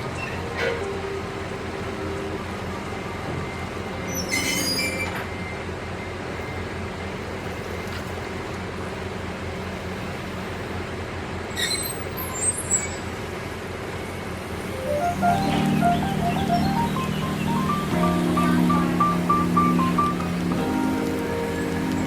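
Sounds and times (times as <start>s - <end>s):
truck engine running: 14.6s - 22.0s.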